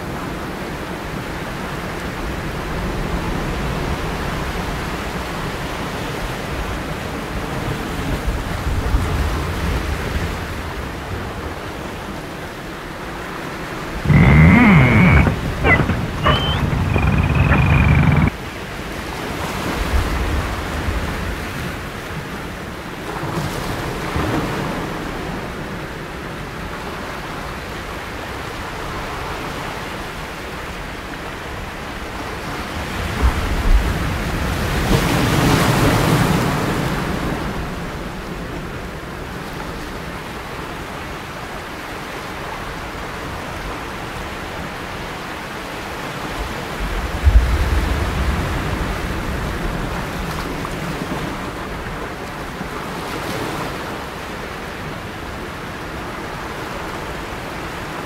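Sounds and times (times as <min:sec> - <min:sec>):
wind on microphone: 0:14.1 - 0:18.3.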